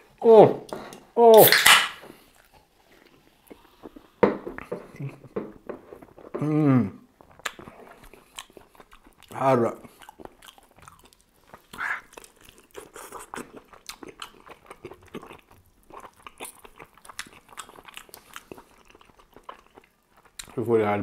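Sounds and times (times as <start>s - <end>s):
soft chewing crunches: 2.1s - 20.7s
wet mouth clicks: 11.6s - 14.3s.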